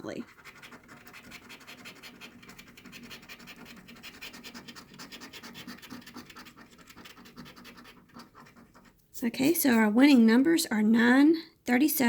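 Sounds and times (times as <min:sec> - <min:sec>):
scratching lottery ticket: 0:00.2 - 0:09.8.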